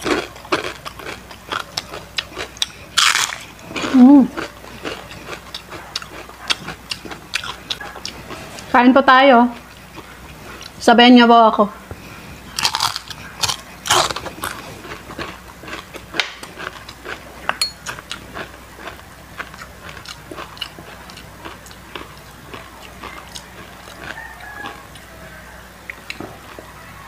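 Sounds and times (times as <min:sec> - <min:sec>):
crunching fried chicken skin: 0:00.0 - 0:08.6, 0:12.5 - 0:27.0.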